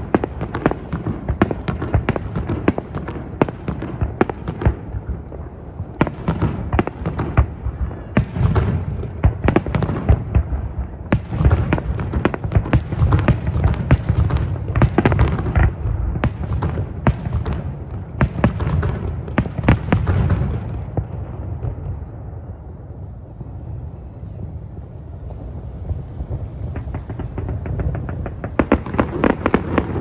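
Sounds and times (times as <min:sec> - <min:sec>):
fireworks bangs and crackles: 0:00.0 - 0:30.0
low rumble: 0:21.0 - 0:29.6.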